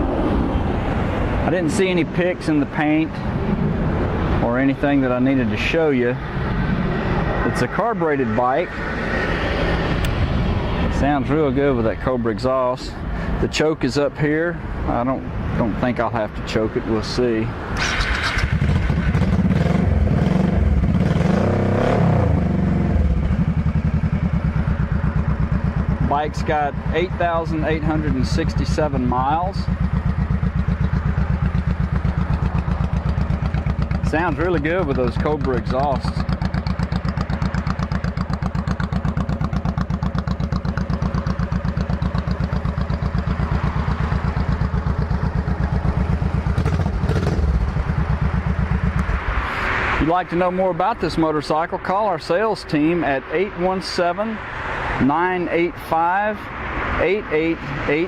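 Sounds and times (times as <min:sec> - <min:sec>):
motorcycle engine revving and idling: 0:14.9 - 0:50.8.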